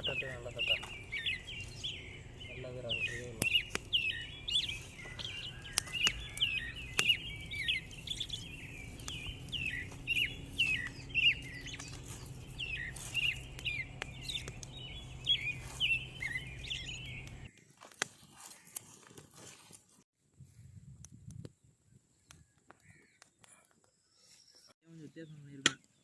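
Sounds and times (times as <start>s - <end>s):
low steady hum: 0.0s - 17.5s
birds chirping: 0.0s - 19.0s, 22.1s - 26.0s.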